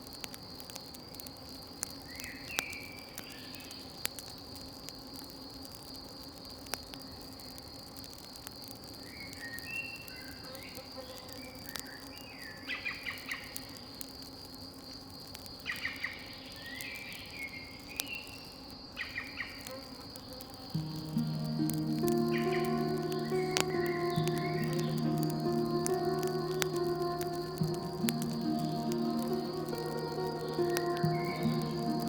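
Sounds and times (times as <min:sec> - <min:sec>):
campfire pops: 0:00.0 - 0:10.7, 0:11.4 - 0:18.4, 0:19.6 - 0:32.0
insects chirring: 0:00.0 - 0:32.0
birds chirping: 0:20.8 - 0:32.0.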